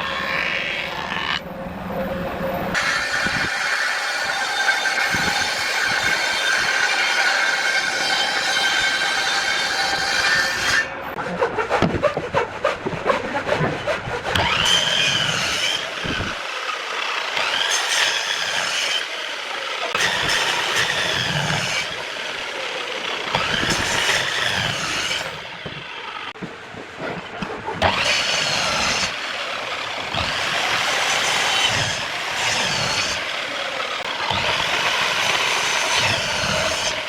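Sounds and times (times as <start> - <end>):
power tool whining on wood: 13.8 - 26.3, 27.8 - 37.0.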